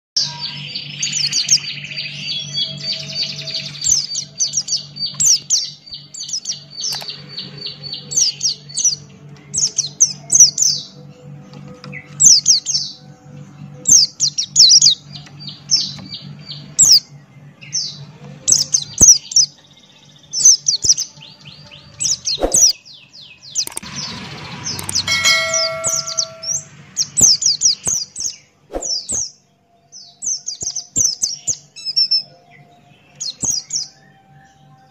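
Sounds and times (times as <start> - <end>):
bird chirping: 13.9 - 34.9
low steady hum: 23.4 - 28.6.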